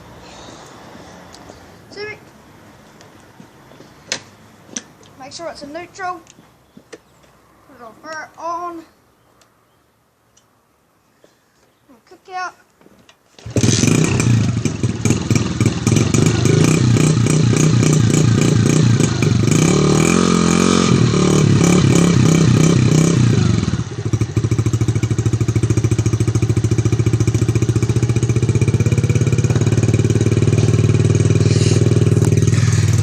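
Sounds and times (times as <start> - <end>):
motorcycle engine kick-starting: 13.4 - 19.8, 21.6 - 33.0
motorcycle engine revving and idling: 13.4 - 33.0.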